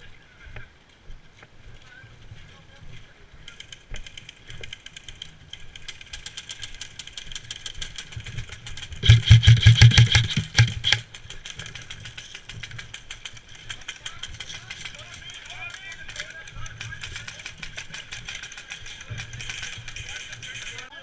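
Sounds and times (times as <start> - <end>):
faint rapid shot ticks: 3.5 - 21.0
airsoft gun full-auto burst: 6.2 - 11.1, 12.0 - 21.0.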